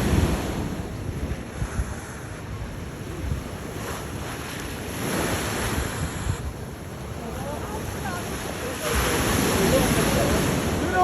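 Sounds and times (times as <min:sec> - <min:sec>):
ocean surf washing in: 0:00.0 - 0:11.0
wind buffeting microphone: 0:00.0 - 0:11.0.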